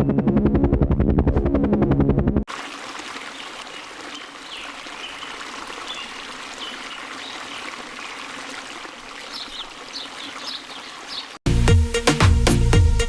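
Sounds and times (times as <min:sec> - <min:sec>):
stream water rushing: 0:02.5 - 0:11.4.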